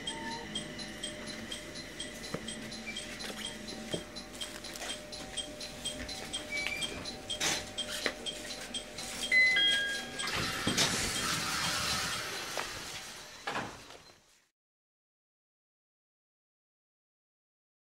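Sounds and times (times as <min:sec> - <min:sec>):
chime tones: 0:00.0 - 0:12.6.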